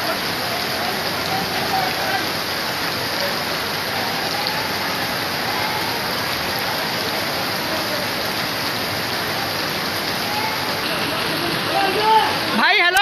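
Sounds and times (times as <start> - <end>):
flowing floodwater: 0.0 - 13.0
heavy rain: 0.0 - 13.0.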